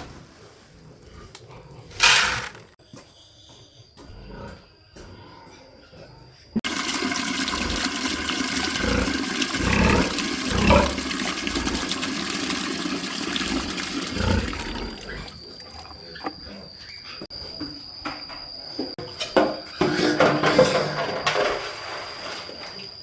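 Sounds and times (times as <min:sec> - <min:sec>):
water rushing and splashing: 0:06.6 - 0:15.5.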